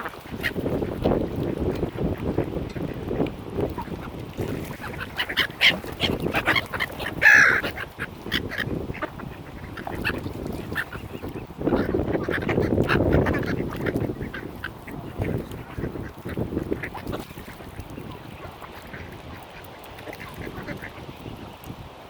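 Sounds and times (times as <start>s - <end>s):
ducks quacking: 0.0s - 21.5s.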